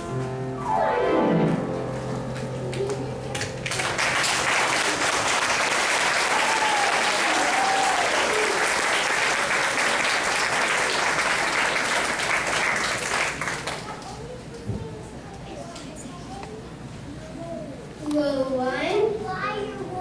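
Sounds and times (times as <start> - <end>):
audience applauding: 3.4 - 14.2.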